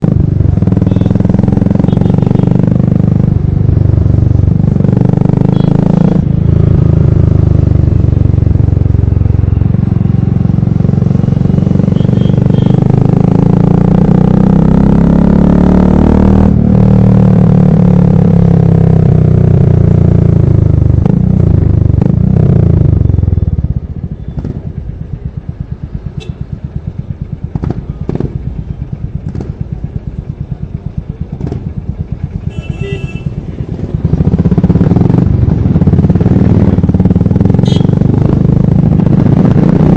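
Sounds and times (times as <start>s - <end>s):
motorcycle exhaust revving: 0.0s - 39.9s
motorcycle idling: 0.1s - 4.8s, 6.2s - 13.1s, 19.1s - 39.1s.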